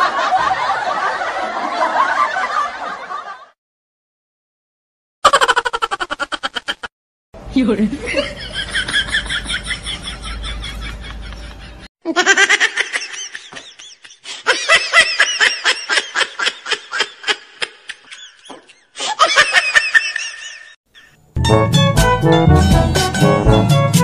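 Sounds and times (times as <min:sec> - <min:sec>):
high-pitched laughter: 0:05.2 - 0:06.9, 0:08.0 - 0:21.2.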